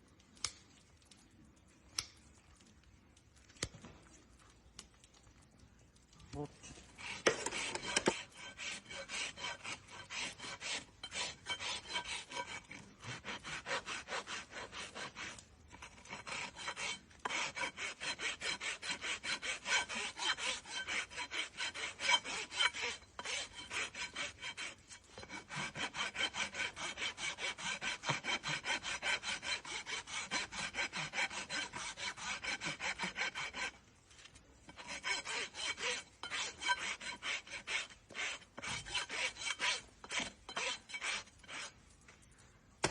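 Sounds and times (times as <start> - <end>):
rasp filing a hoof: 6.7 - 33.9, 34.6 - 41.9.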